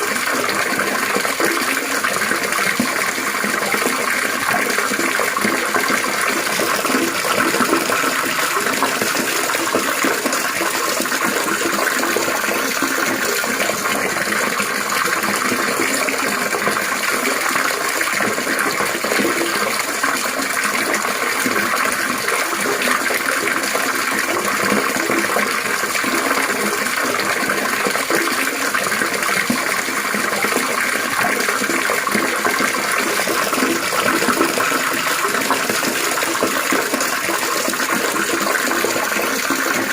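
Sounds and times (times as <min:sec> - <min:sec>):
running water babbling: 0:00.0 - 0:39.9.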